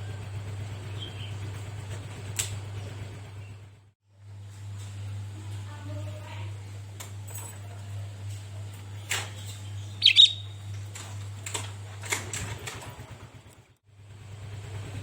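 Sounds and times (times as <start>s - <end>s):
bird sharp call: 9.9s - 10.6s.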